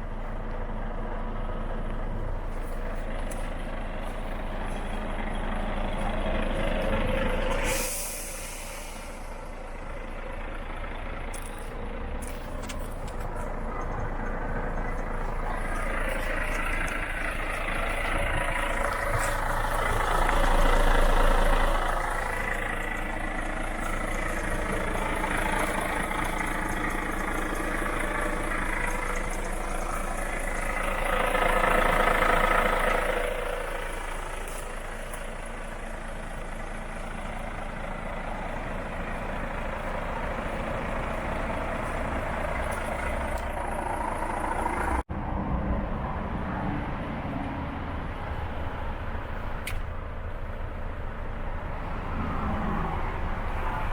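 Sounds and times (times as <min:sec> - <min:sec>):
diesel truck engine running: 0:00.0 - 0:53.9.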